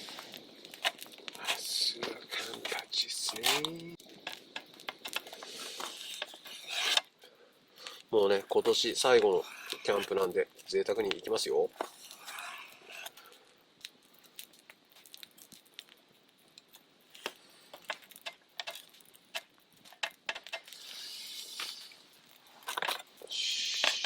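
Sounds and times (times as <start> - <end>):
crinkling rustle: 0.0 - 24.0.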